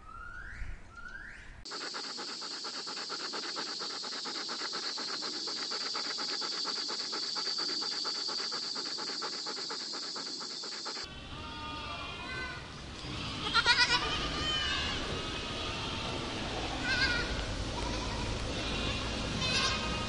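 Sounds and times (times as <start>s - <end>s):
dogs panting: 1.7s - 11.1s
goats bleating: 11.2s - 20.0s.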